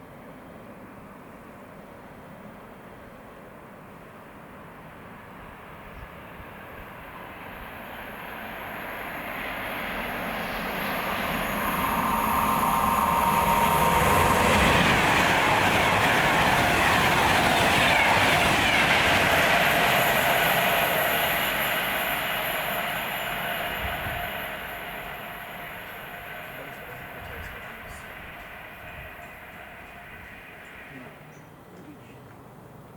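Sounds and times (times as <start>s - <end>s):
train passing: 0.0s - 32.9s
wheel and rail noise: 5.0s - 32.9s
steady high whine: 8.0s - 31.5s.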